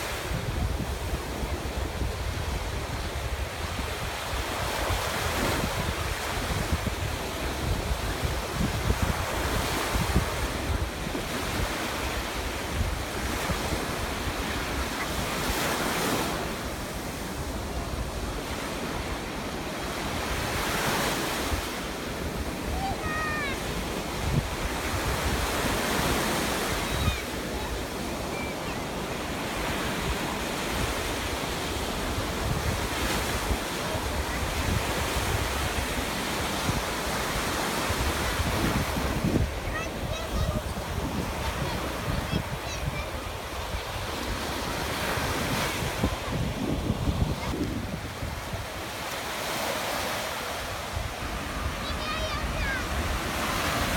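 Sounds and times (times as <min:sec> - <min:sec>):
wind buffeting microphone: 0:00.0 - 0:19.2, 0:29.6 - 0:49.1
waves breaking: 0:00.0 - 0:53.9.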